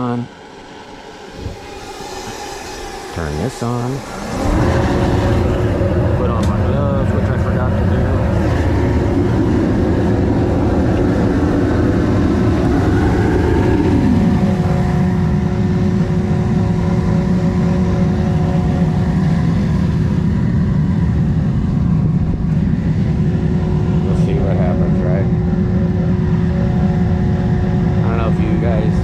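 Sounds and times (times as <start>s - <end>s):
faint steady whine: 0.0s - 29.0s
furnace burner roaring: 0.0s - 29.0s.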